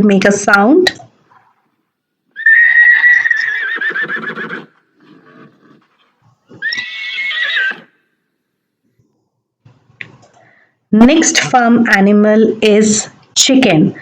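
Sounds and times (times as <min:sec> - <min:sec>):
horse whinnying: 0:02.3 - 0:05.9, 0:06.5 - 0:08.0.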